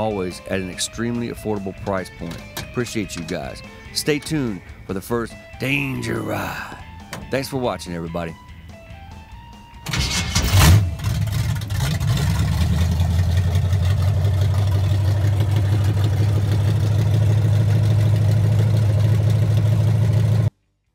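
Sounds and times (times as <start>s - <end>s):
car engine idling: 10.0s - 20.5s.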